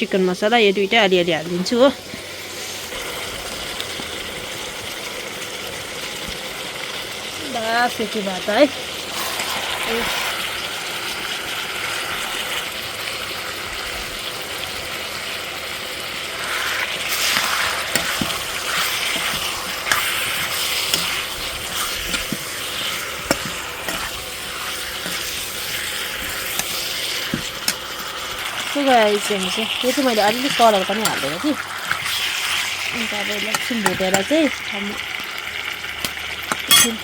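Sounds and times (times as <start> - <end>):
chicken sizzling in a pan: 0.0 - 37.0
utensil scraping a pan: 9.1 - 10.5, 16.4 - 34.4.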